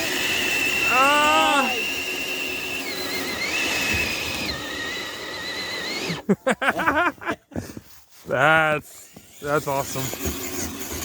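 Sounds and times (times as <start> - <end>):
electric motor whining: 0.0 - 6.3.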